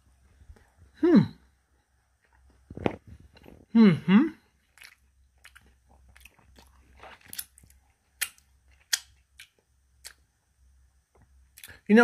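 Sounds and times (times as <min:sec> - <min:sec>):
wet chewing close to microphone: 0:04.6 - 0:10.2
mouth clicks and smacks: 0:04.7 - 0:10.3.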